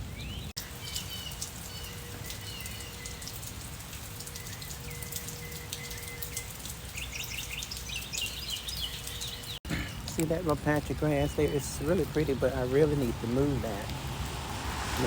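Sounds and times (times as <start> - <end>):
rain falling: 0.0 - 15.0
bird chirping: 0.1 - 3.5, 4.2 - 12.4.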